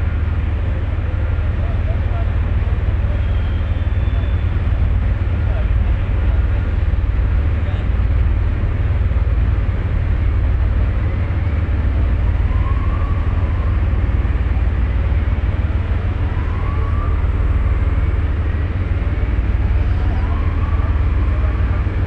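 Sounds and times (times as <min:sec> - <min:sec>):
ferry engine rumble: 0:00.0 - 0:22.0
faint rising whistle: 0:03.0 - 0:04.6, 0:11.0 - 0:14.3, 0:16.2 - 0:22.0.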